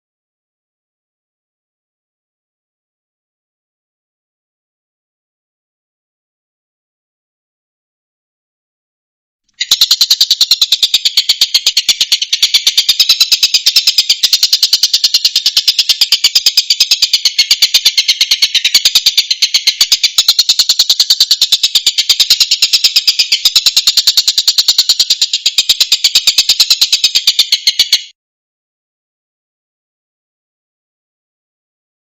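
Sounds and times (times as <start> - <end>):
bird calling in rapid trill: 9.6 - 28.2.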